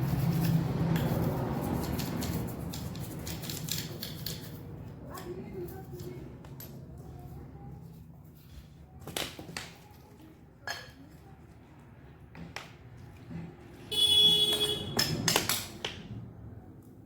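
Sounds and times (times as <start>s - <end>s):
metal tools clicking and tapping: 0.2s - 7.0s, 10.6s - 11.3s, 14.5s - 16.0s.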